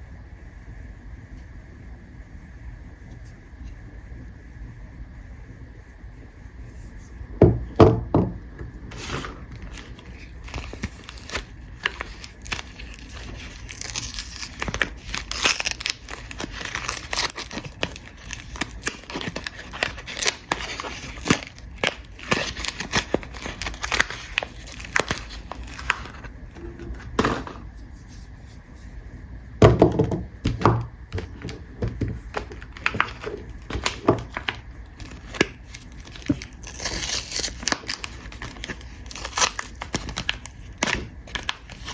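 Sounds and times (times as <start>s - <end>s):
wrapper crinkling and tearing: 8.9s - 27.2s, 31.2s - 41.9s.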